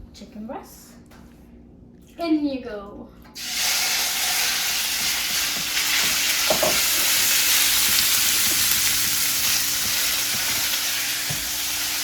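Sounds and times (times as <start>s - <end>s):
meat sizzling in hot oil: 3.4s - 12.0s
stirring knocks: 4.8s - 11.7s.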